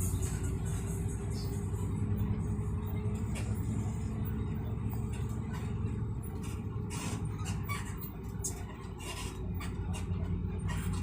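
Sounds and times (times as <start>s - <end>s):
vehicle rumble: 0.0s - 11.0s.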